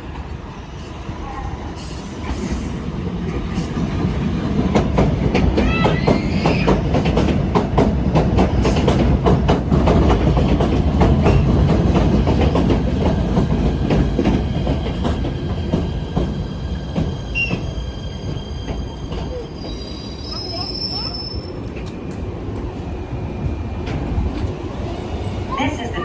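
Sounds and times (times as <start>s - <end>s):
train brakes squealing: 0.7s - 3.8s, 16.4s - 21.8s
train wheels clicking over rail joints: 2.0s - 19.9s.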